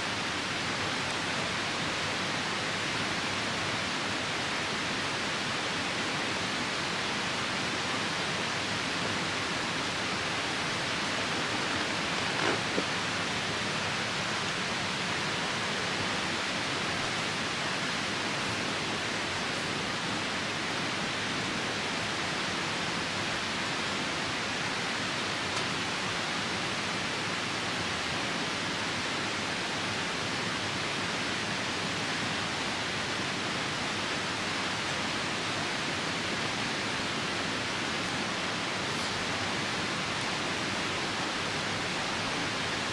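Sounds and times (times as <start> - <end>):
rain: 0.0 - 42.9
river rushing: 0.0 - 42.9
campfire crackle: 7.7 - 14.5.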